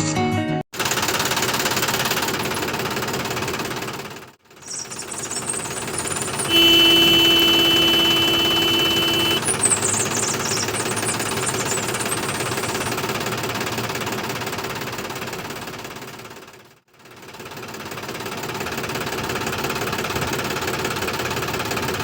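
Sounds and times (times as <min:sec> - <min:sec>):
small tractor motor rattling: 0:00.8 - 0:22.0
horn-like tone: 0:05.7 - 0:09.6.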